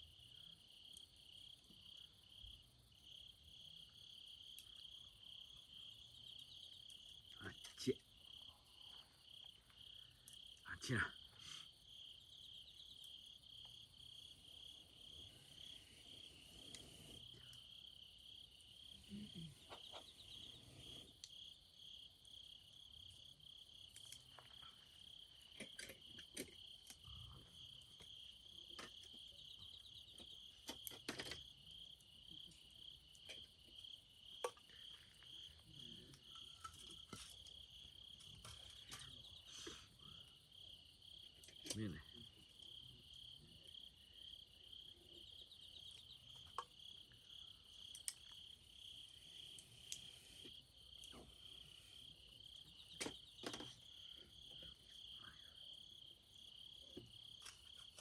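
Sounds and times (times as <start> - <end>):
insects trilling: 0.0 - 58.0
sharp clicks and pops: 47.8 - 48.4.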